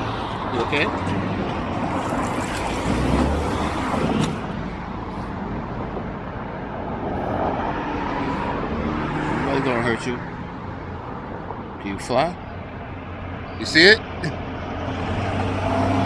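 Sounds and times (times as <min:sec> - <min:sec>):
steady traffic hum: 0:00.0 - 0:16.0.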